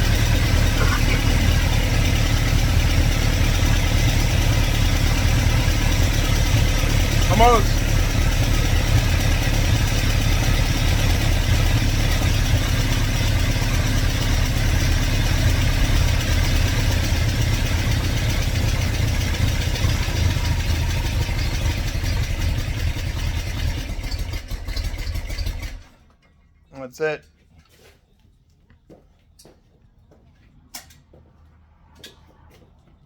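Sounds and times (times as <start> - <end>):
car engine idling unevenly: 0.0 - 26.0.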